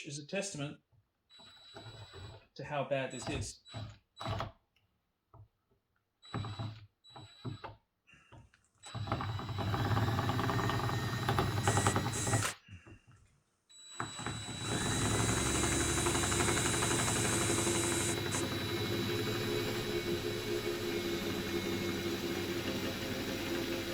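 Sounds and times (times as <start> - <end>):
power drill whining: 1.3 - 2.5, 3.1 - 4.5, 6.2 - 12.6, 13.8 - 23.9.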